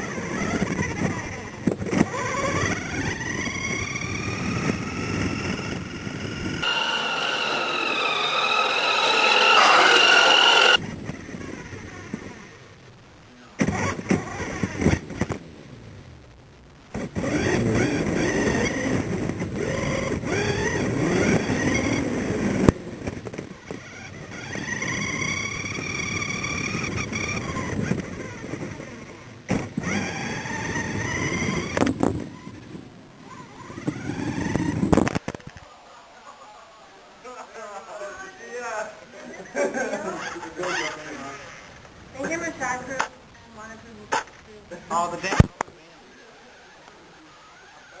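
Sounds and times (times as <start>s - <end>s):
toy car electric motor whining: 0.0s - 12.5s, 19.6s - 22.6s, 23.5s - 32.6s, 33.3s - 35.2s, 46.2s - 48.0s
toy car wheels rumbling: 0.0s - 12.6s, 16.9s - 35.7s, 46.1s - 48.0s.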